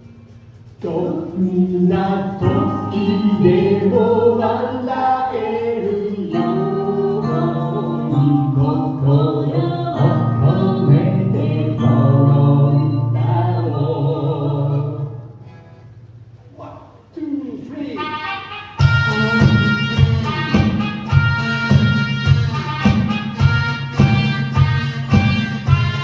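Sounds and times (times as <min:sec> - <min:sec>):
person singing: 0:00.8 - 0:15.1, 0:18.2 - 0:21.9
live music: 0:18.0 - 0:26.0.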